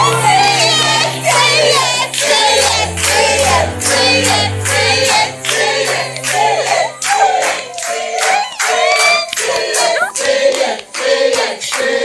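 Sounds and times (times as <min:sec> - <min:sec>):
voices singing: 0:00.0 - 0:12.0
rhythmic handclaps: 0:00.7 - 0:12.0.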